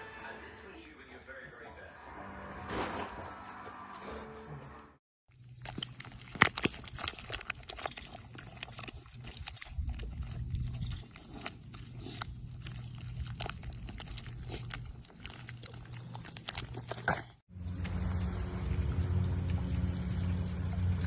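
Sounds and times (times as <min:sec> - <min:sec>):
animal clicking: 0:05.6 - 0:17.1
low steady hum: 0:17.6 - 0:21.0.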